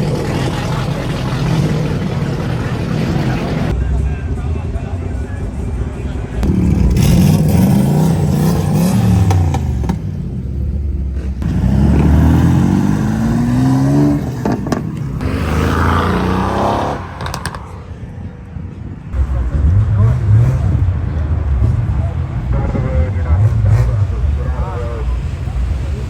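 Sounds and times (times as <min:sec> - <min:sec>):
car engines accelerating past: 0:06.4 - 0:26.0.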